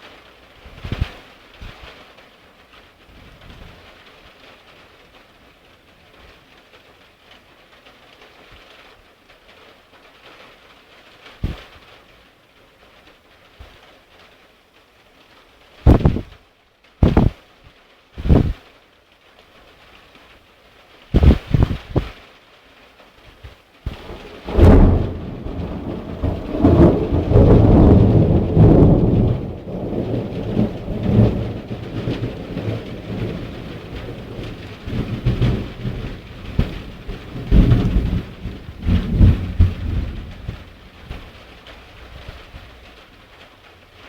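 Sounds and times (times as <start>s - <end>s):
rain falling: 0.0s - 44.0s
thunder cracking and rumbling: 23.9s - 43.5s.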